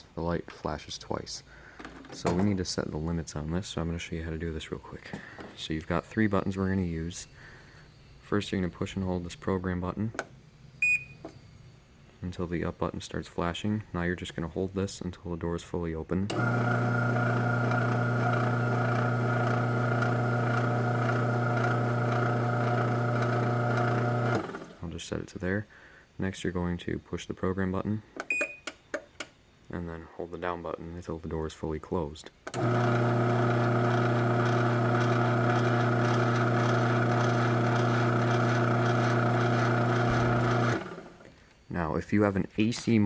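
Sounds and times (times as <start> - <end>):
garage door opener motor humming: 16.3 - 24.8, 32.5 - 41.3.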